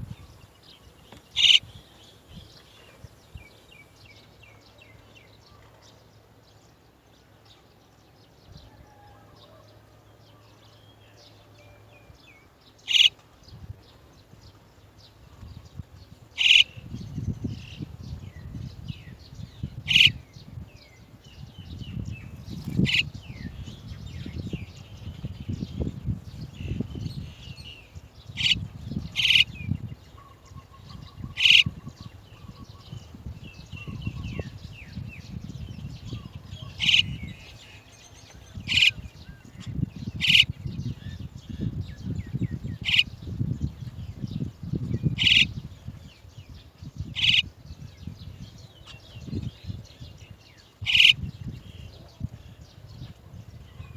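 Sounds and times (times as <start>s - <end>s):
birds' sharp high calls: 0.0s - 3.9s, 12.8s - 13.2s, 16.4s - 16.9s, 19.8s - 20.2s, 22.6s - 23.6s, 26.6s - 43.2s, 45.0s - 45.6s, 47.0s - 47.5s, 50.8s - 51.8s
faint bird chirps: 0.0s - 5.8s, 12.8s - 13.3s, 16.4s - 20.2s, 25.8s - 45.6s, 47.0s - 47.5s, 48.3s - 52.1s.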